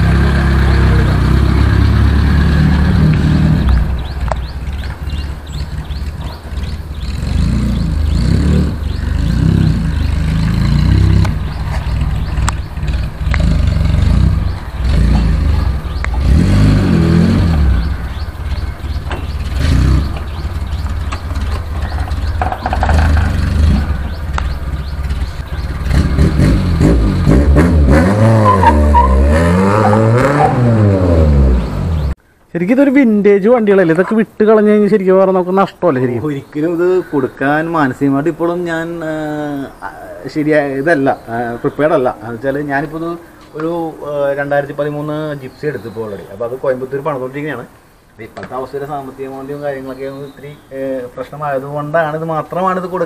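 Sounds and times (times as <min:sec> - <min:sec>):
car engine running: 0:00.0 - 0:28.0
engine revving: 0:00.0 - 0:32.2.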